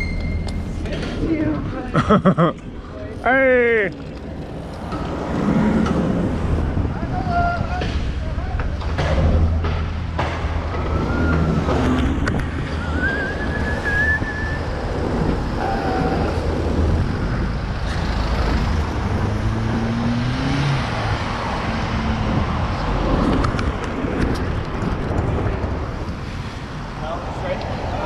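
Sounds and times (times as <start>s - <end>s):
high squeal: 0.0s - 0.6s, 12.6s - 14.8s
road traffic: 0.0s - 28.0s
engine rising in pitch: 10.7s - 14.8s.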